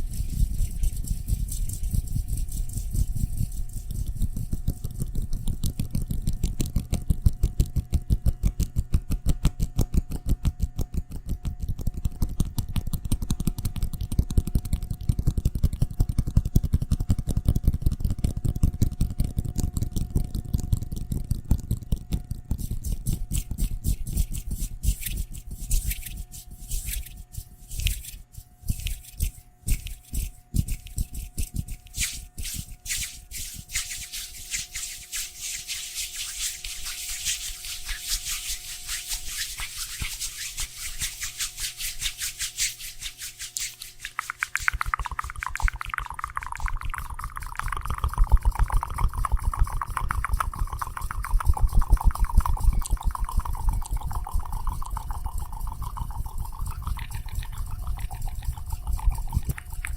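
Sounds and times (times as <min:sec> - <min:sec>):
rhythmic scraping strokes: 0:00.0 - 0:04.8, 0:22.6 - 0:59.9
faint steady hum: 0:00.0 - 0:59.9.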